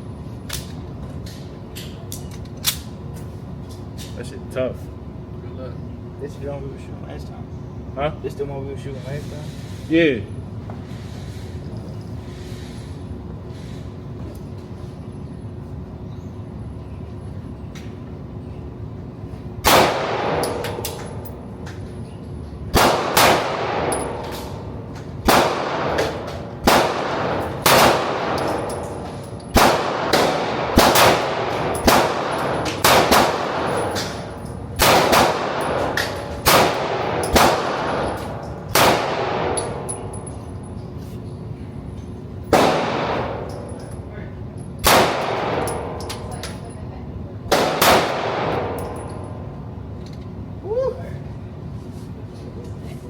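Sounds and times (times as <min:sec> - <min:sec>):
gunshots with echo: 0:22.8 - 0:24.3, 0:25.2 - 0:28.6, 0:29.6 - 0:34.1, 0:34.8 - 0:38.0.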